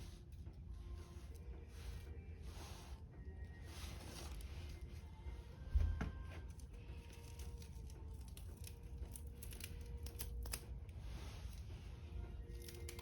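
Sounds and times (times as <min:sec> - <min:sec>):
wood fire crackling: 0:05.8 - 0:13.0.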